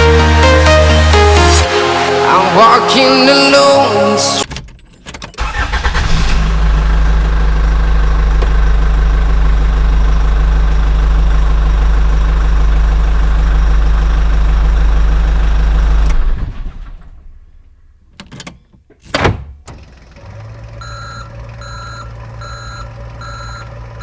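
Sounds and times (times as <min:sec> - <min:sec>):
tractor engine idling: 0:05.4 - 0:16.1, 0:20.0 - 0:24.0.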